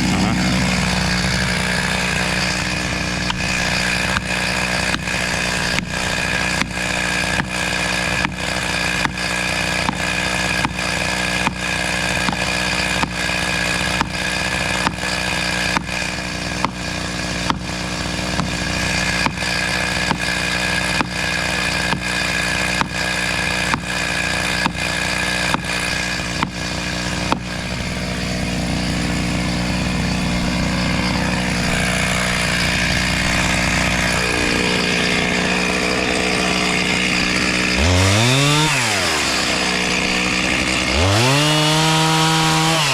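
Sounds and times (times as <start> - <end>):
chainsaw engine running: 0.0 - 42.9.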